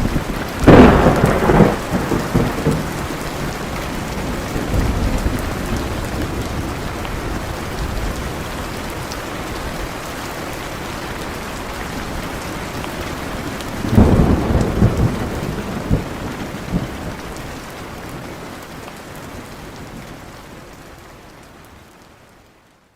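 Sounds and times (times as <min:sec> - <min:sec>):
thunder crack and rumble: 0:00.0 - 0:08.3, 0:13.8 - 0:17.2
heavy rain falling: 0:00.0 - 0:22.9.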